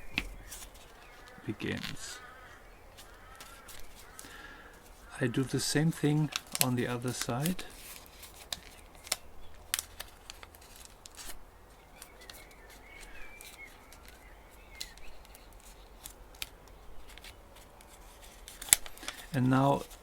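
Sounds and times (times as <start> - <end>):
paper being folded and creased: 0.0 - 2.3, 2.9 - 20.0.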